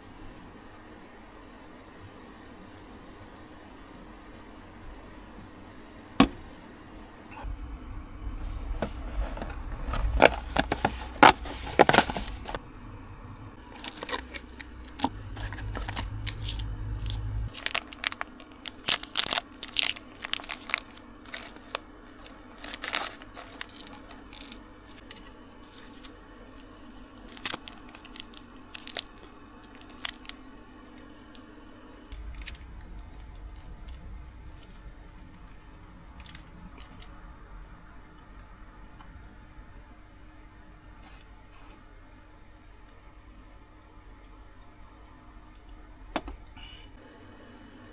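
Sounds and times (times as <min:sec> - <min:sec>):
low hum: 0:03.9 - 0:41.0
packaging tearing and crinkling: 0:08.6 - 0:12.6, 0:13.7 - 0:30.4, 0:32.1 - 0:34.0.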